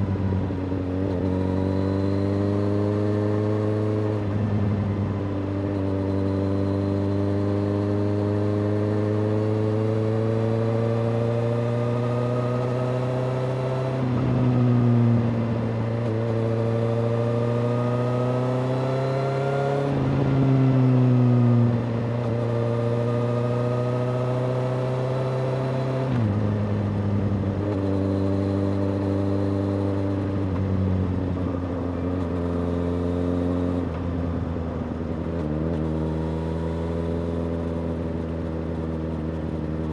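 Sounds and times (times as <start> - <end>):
motorcycle engine under way: 0.0 - 39.9.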